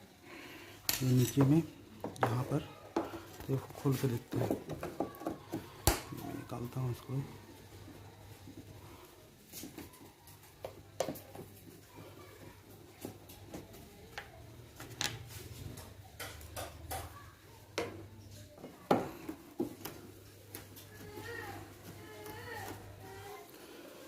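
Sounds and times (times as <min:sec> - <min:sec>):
tool and screws clinking: 0:00.9 - 0:01.7.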